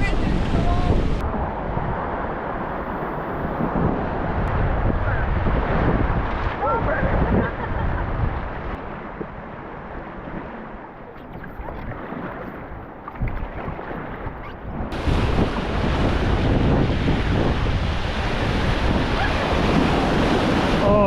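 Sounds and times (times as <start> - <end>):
wind buffeting microphone: 0.0 - 21.0
whitewater rushing and splashing: 11.4 - 21.0.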